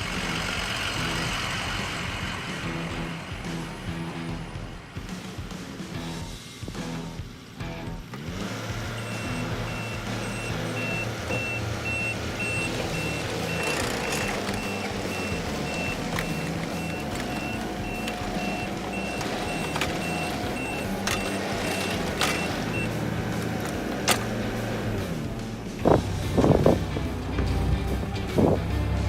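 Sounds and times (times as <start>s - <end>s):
diesel engine running: 0.0s - 29.0s
backup alarm beeping: 9.0s - 23.0s.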